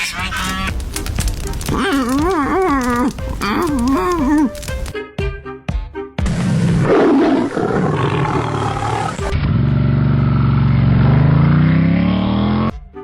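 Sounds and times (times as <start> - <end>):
loud roar: 6.3 - 9.6
low rough growl: 6.4 - 11.5.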